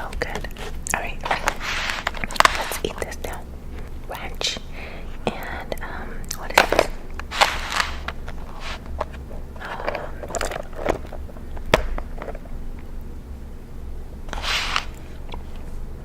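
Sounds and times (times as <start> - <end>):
low steady hum: 0.0 - 16.0
crunchy chewing: 6.3 - 13.1.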